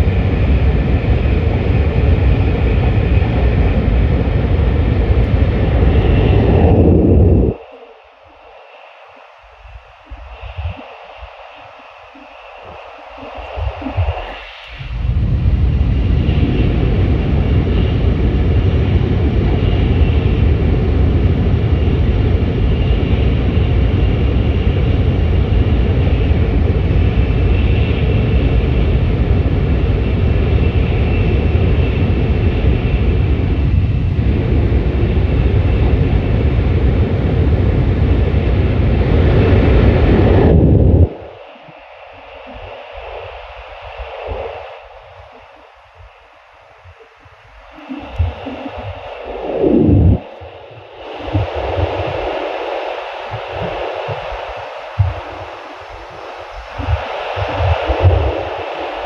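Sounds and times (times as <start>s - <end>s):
train rumbling at speed: 0.0s - 7.8s, 9.6s - 59.0s
hiss of air: 41.0s - 59.0s.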